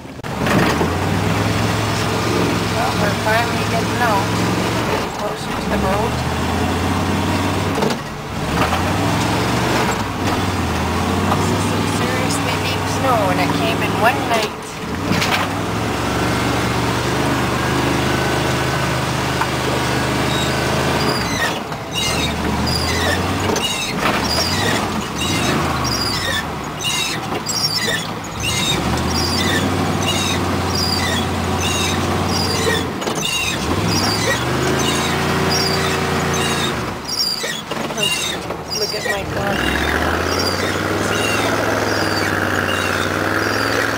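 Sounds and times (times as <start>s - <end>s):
truck engine under load: 0.0s - 43.9s
short high squeak: 20.2s - 43.9s.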